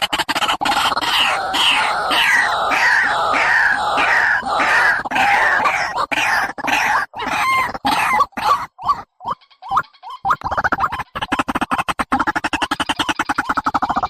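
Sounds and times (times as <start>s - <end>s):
bird calling harsh descending notes: 0.7s - 6.4s.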